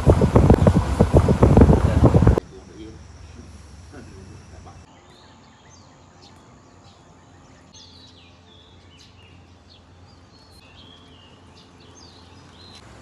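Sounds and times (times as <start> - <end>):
birds chirping: 0.0 - 2.4
outdoor background noise: 0.0 - 13.0.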